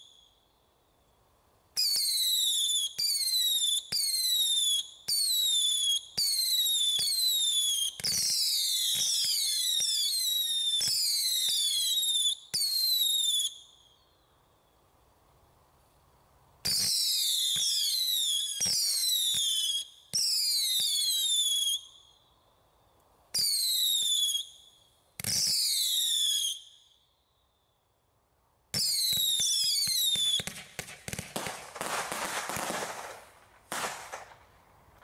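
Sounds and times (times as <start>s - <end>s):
falling firework whistles: 0.0s - 1.1s, 1.7s - 14.7s, 16.6s - 27.7s, 28.7s - 34.5s
firework bangs: 28.7s - 34.6s
firework launch pops: 28.8s - 34.5s
noisy firework rush: 29.9s - 34.6s.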